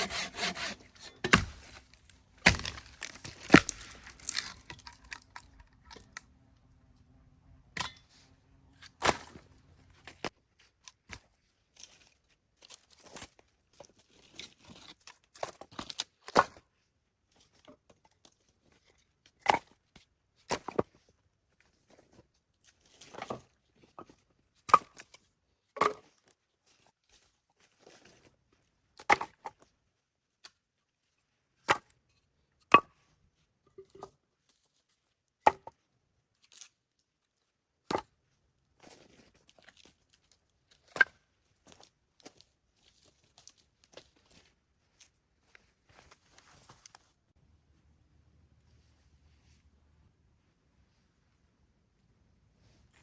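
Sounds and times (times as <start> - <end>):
knife chopping on wooden board: 0.0 - 1.6.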